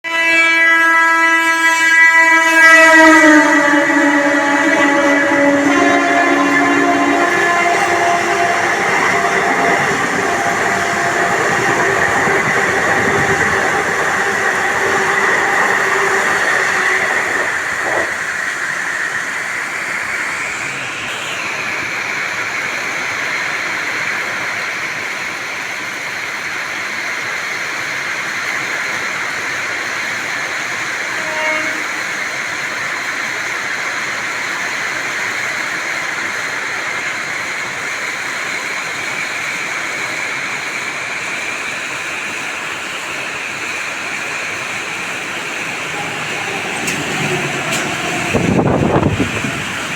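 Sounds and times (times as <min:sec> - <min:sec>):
train horn: 0:00.0 - 0:18.6, 0:30.4 - 0:32.4, 0:44.1 - 0:49.9
train rushing on rails: 0:00.0 - 0:49.9
heavy rain: 0:32.4 - 0:49.9.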